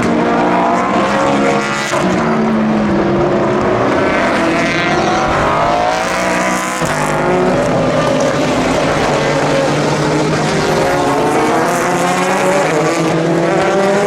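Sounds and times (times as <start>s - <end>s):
racing car engines passing: 0.0s - 14.0s.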